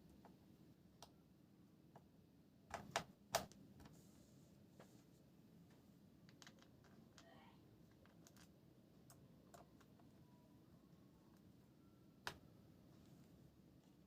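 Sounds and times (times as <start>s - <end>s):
laptop clicks and taps: 2.7s - 3.6s.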